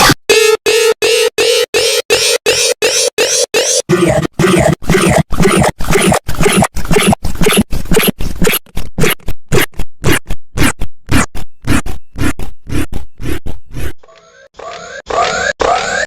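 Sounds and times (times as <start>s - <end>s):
distorted stutter-edit chopping: 0.0s - 16.0s.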